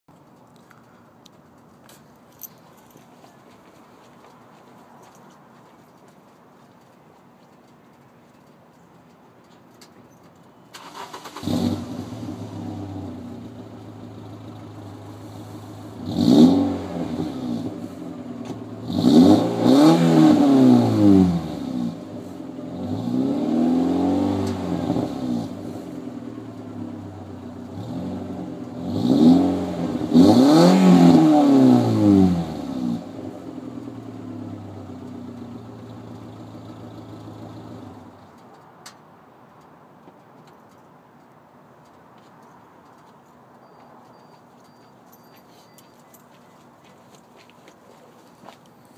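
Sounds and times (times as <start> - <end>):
car engine starting and idling: 9.8 - 38.6
car engine revving: 10.8 - 25.8, 26.8 - 38.1.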